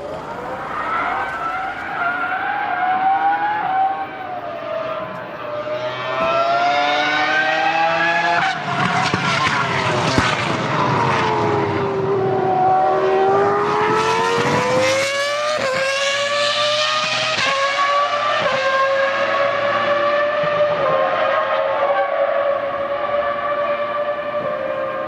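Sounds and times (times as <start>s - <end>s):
racing car engine accelerating: 0.0s - 25.0s.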